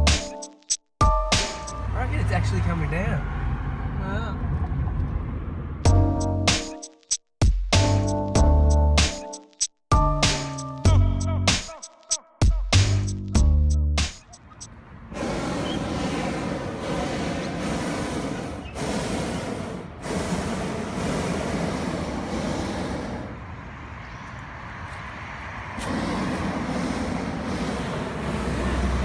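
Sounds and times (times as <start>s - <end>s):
road traffic noise: 1.3s - 6.5s, 14.0s - 29.0s.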